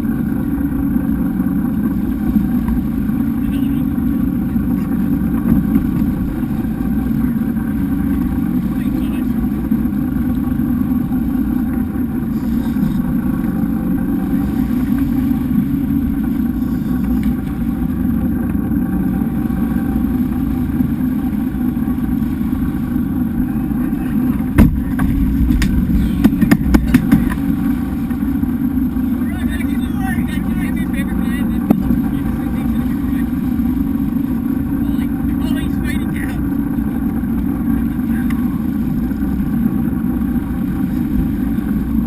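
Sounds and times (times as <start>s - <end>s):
boat engine running: 0.0s - 42.0s
sharp knocks: 24.6s - 27.4s.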